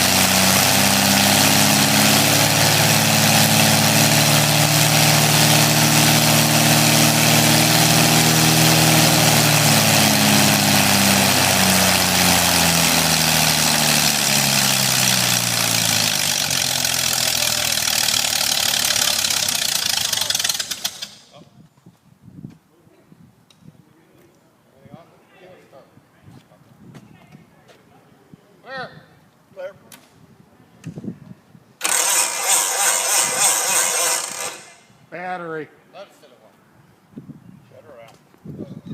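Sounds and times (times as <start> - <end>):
aircraft engine and propeller running: 0.0 - 21.3, 31.8 - 34.9.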